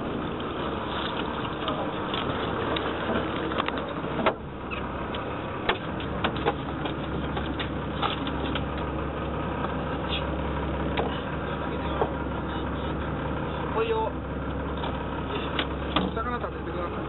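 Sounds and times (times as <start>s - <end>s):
boat engine idling: 0.0s - 17.0s
sharp knocks and clicks: 3.1s - 8.9s.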